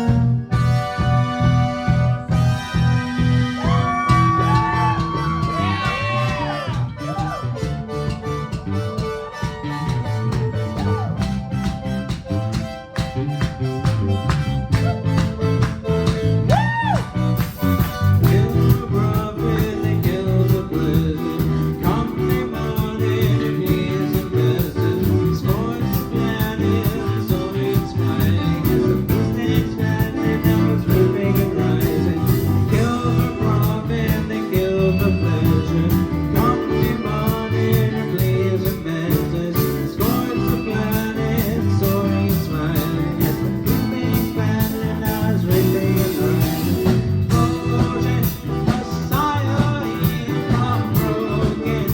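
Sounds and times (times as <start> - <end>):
live band playing: 0.0 - 51.9.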